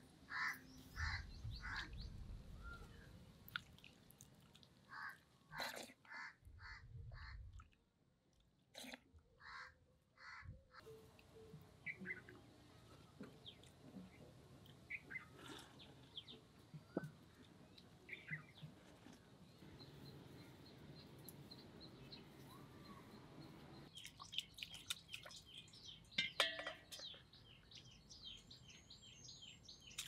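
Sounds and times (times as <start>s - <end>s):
faint bird calls: 0.3s - 3.2s, 9.4s - 14.1s.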